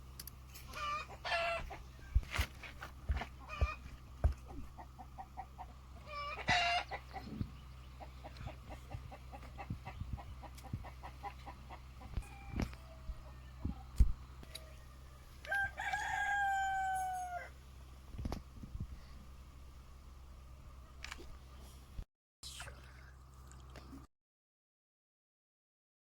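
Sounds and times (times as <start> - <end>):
chickens clucking: 0.6 - 17.5
rooster crowing: 14.5 - 17.6.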